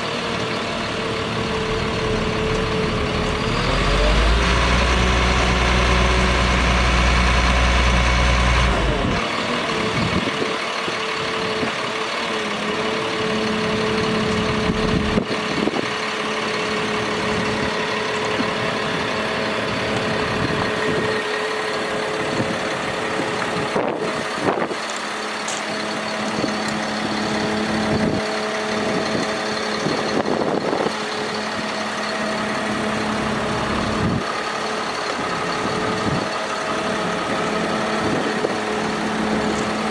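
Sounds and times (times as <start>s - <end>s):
truck engine humming: 0.0s - 39.9s
deep low rumble: 0.9s - 9.2s.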